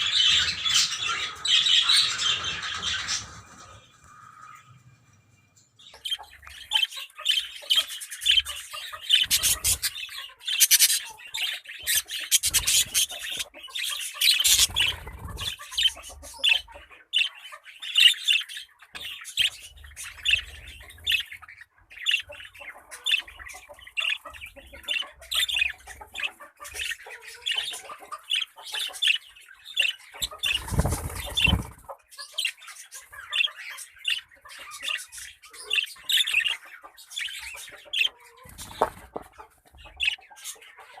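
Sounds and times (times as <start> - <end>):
parrots squawking: 0.0 - 4.0, 6.0 - 29.2.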